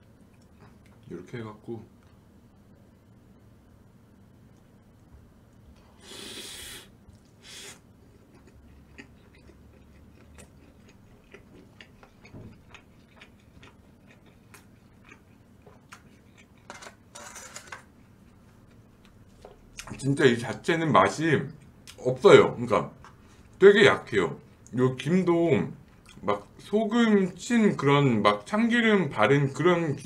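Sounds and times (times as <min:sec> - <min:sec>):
close-miked chewing with clicks: 0:00.0 - 0:01.1, 0:08.0 - 0:16.7, 0:25.8 - 0:26.7.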